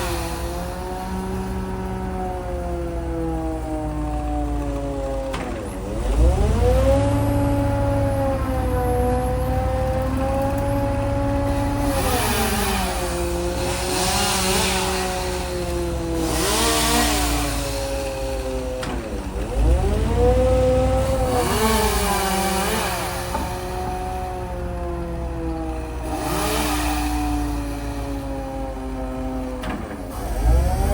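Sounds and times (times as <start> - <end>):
engine-driven machine running: 0.0 - 30.9.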